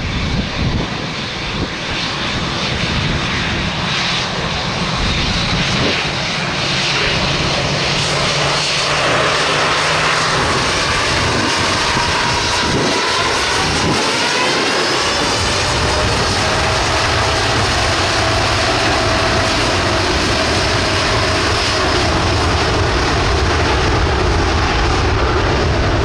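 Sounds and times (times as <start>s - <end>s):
jet engines passing: 0.0s - 26.0s.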